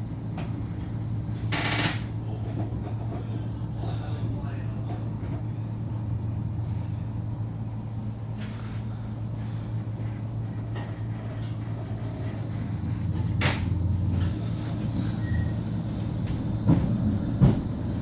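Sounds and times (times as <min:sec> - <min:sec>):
tram running with low hum: 0:00.0 - 0:18.0.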